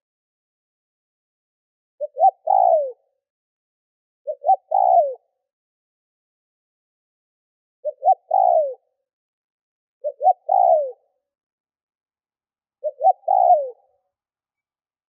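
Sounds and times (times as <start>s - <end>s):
dove cooing: 2.0s - 3.0s, 4.3s - 5.4s, 7.8s - 8.9s, 10.0s - 11.1s, 12.8s - 14.0s.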